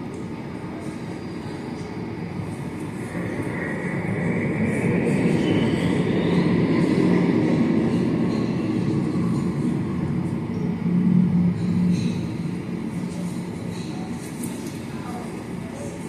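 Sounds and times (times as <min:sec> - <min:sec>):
steady low rumble: 0:02.4 - 0:14.3.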